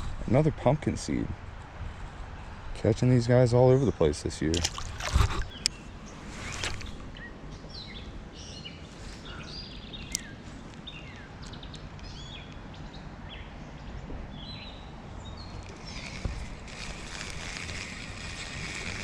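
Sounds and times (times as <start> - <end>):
small birds chirping: 3.6 - 16.9.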